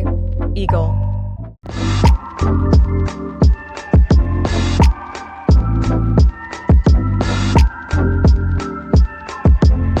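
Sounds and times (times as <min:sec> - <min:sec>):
deep kick drum: 0:02.8 - 0:04.9, 0:05.5 - 0:08.4, 0:09.0 - 0:10.0.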